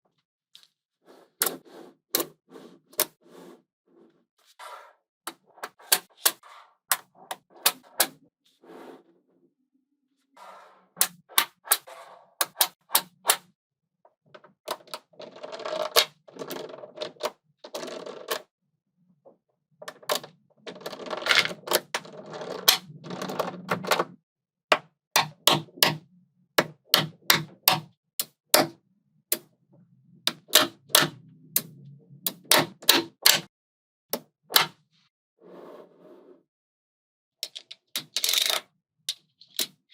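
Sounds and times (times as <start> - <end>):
cluster of balls rattling: 21.0 - 21.6.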